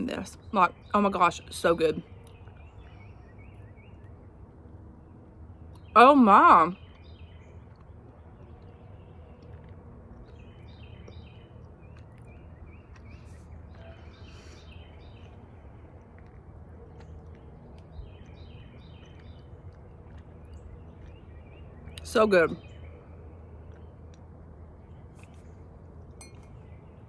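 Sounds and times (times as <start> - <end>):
songbird chirping: 0.0 - 27.0
steady low rumble: 0.0 - 27.0.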